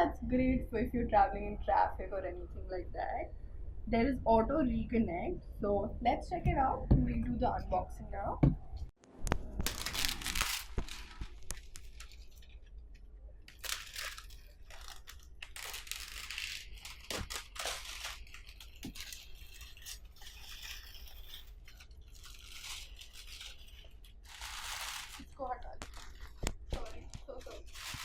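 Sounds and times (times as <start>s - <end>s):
tearing and rustling packaging: 9.6s - 12.7s, 13.4s - 28.0s.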